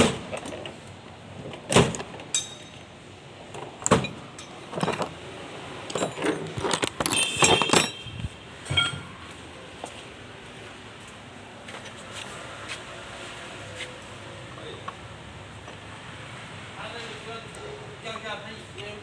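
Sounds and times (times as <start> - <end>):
metal tools knocking and clinking: 2.3 - 2.9, 3.8 - 5.2, 5.8 - 9.2
metallic ring: 2.4 - 2.8, 5.9 - 9.2.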